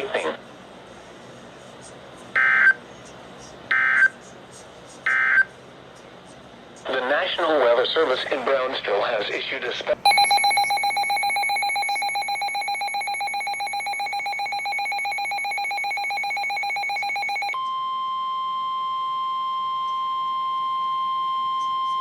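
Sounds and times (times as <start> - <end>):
steady alarm tone: 10.0 - 17.6
pulsing electronic alarm: 10.1 - 17.6.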